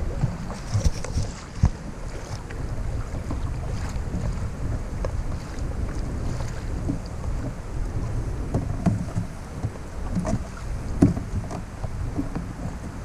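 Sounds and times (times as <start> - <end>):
water splashing against kayak: 0.0 - 13.0
wind buffeting microphone: 0.0 - 13.0.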